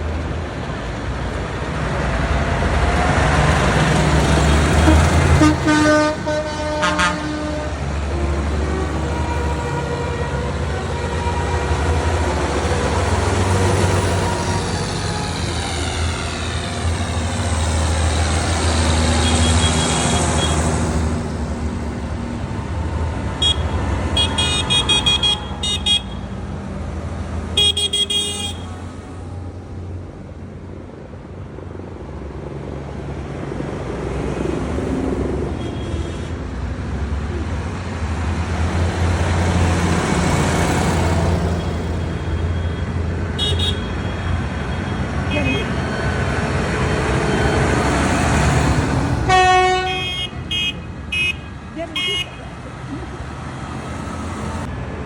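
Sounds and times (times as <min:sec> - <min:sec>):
trucks driving past: 0:00.0 - 0:55.0
truck horn toots: 0:04.5 - 0:12.1, 0:19.1 - 0:20.8, 0:23.4 - 0:26.3, 0:27.6 - 0:28.7, 0:41.6 - 0:46.0, 0:49.2 - 0:52.5.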